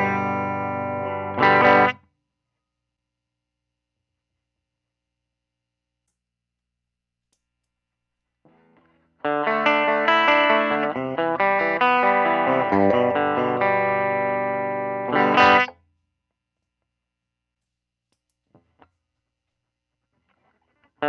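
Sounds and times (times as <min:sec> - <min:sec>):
clean electric guitar: 0:00.0 - 0:02.0, 0:08.5 - 0:15.8.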